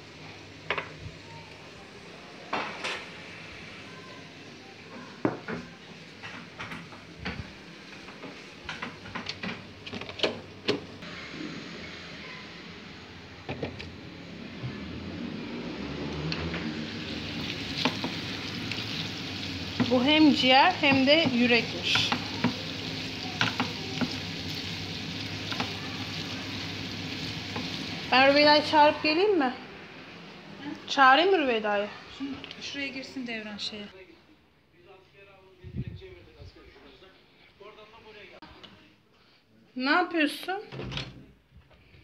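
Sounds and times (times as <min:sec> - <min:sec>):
meat sizzling in a pan: 0:16.7 - 0:28.8.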